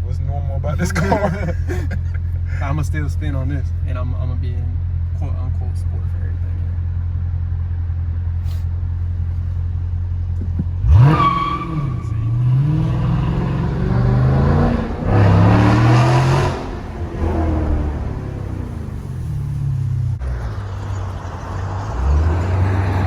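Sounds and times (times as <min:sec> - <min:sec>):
car engine revving and accelerating: 0:10.5 - 0:23.0.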